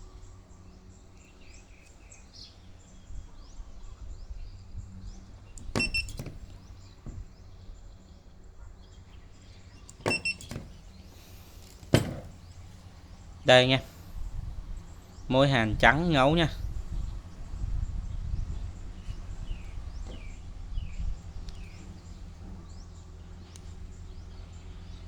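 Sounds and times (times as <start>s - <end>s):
spot welder snapping: 5.6s - 7.2s.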